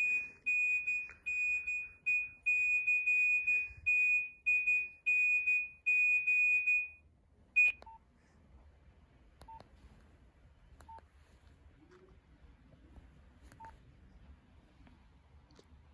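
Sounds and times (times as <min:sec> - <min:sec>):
high-pitched phone alert beeping: 0:00.0 - 0:07.0.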